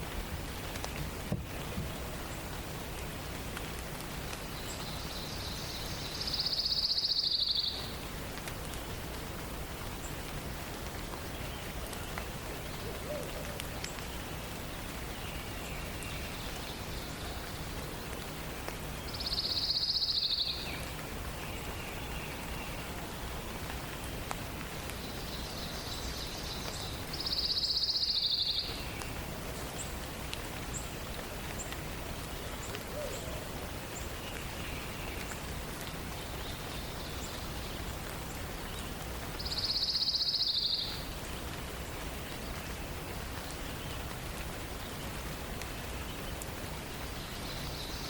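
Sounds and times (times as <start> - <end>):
steady background hiss: 0.0 - 48.0
faint bird calls: 32.5 - 35.2.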